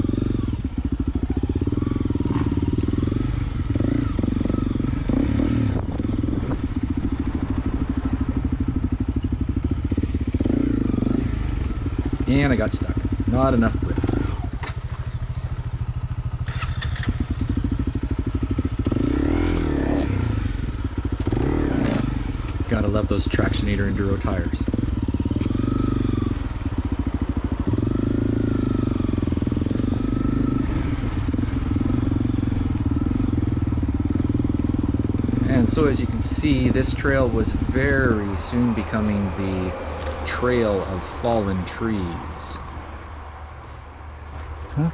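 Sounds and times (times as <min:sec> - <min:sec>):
motorcycle engine thumping at low revs: 0:00.0 - 0:44.8.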